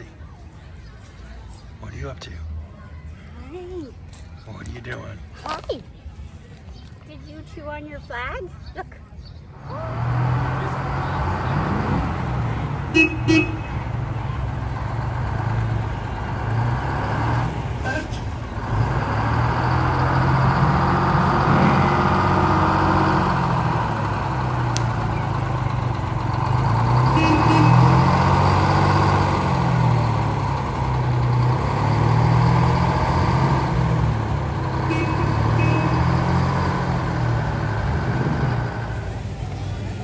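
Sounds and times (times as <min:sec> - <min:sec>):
large vehicle engine drone: 0:09.5 - 0:40.0.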